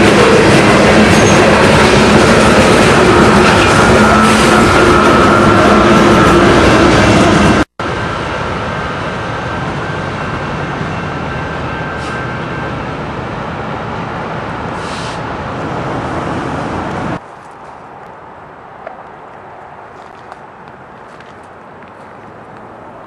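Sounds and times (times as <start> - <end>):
train rumbling by: 0.0 - 23.0
short hisses: 14.8 - 15.3.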